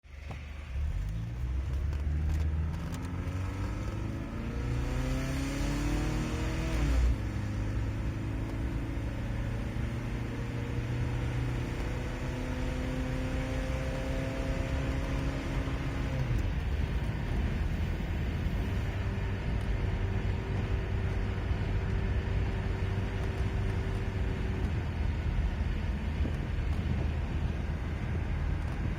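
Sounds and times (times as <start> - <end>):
car engine pulling under load: 0.2 - 28.9.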